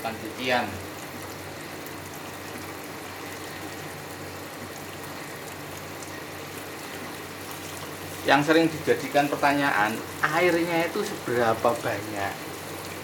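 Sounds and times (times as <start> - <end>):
water running into tub: 0.0 - 13.0.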